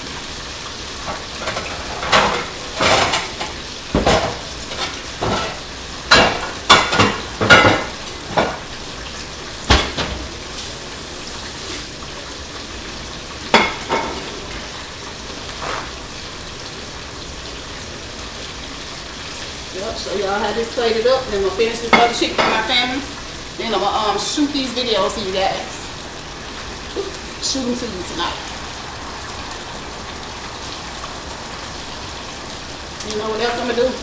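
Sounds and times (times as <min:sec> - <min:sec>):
chicken sizzling in oil: 0:00.0 - 0:34.0
utensils and dishes clattering: 0:01.1 - 0:08.6.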